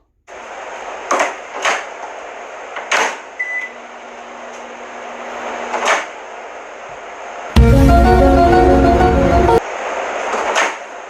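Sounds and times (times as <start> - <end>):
microwave oven hum: 3.4 - 5.8.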